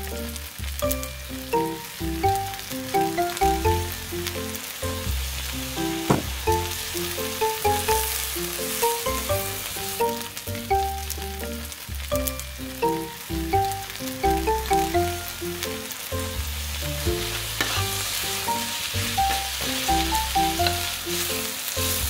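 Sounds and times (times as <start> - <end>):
background music with bass: 0.0 - 22.0
rice sizzling in a frying pan: 0.0 - 22.0
sharp knock: 6.1 - 6.5
metal spoon scraping a pan: 17.2 - 18.1.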